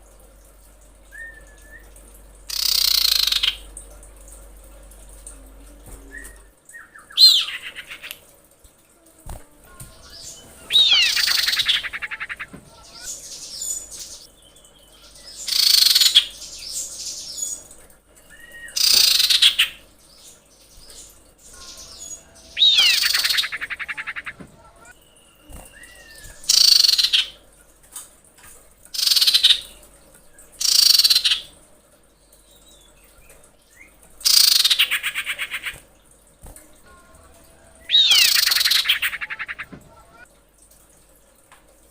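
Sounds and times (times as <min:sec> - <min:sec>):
bird trilling calls: 0:02.5 - 0:03.7, 0:06.0 - 0:08.2, 0:09.9 - 0:14.2, 0:15.3 - 0:16.4, 0:18.4 - 0:19.8, 0:21.5 - 0:27.4, 0:30.6 - 0:31.5, 0:37.8 - 0:40.2.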